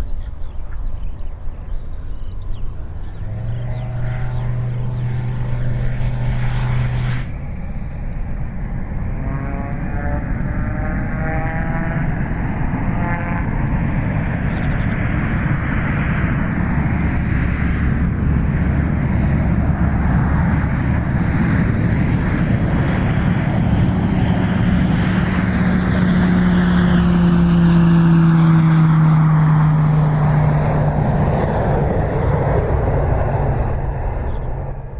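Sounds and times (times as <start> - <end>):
propeller airplane passing: 0.0 - 34.9.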